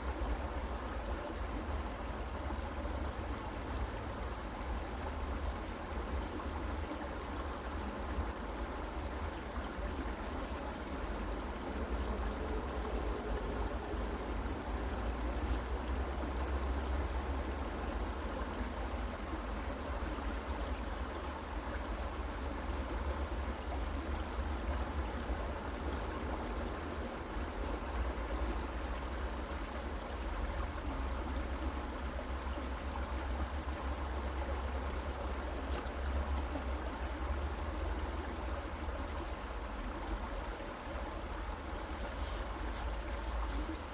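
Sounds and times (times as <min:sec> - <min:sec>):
stream water rushing: 0:39.2 - 0:43.9.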